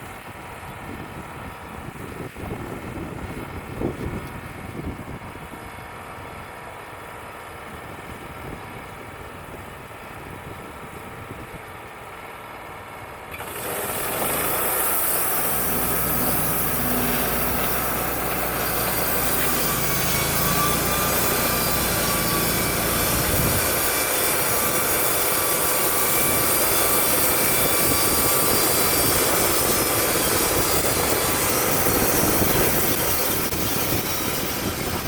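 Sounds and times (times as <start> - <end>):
wind buffeting microphone: 0.0 - 6.6, 7.6 - 11.9, 16.6 - 25.1, 26.0 - 35.0
sawmill engine running: 0.0 - 35.0
band saw cutting log: 13.3 - 35.0.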